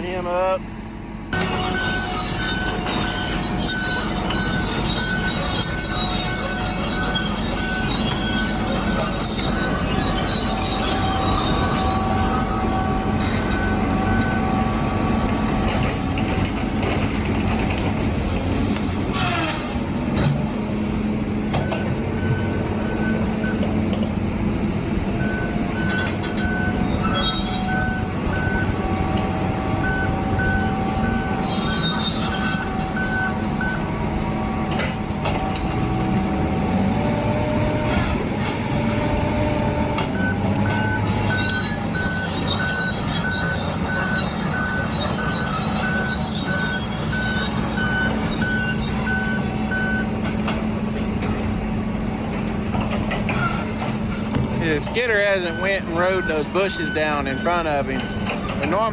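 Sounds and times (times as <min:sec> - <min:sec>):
heavy logging machinery running: 0:00.1 - 0:58.9
reversing alarm beeping: 0:01.3 - 0:15.1, 0:21.5 - 0:23.9, 0:25.2 - 0:34.0, 0:40.2 - 0:50.2, 0:54.6 - 0:58.9.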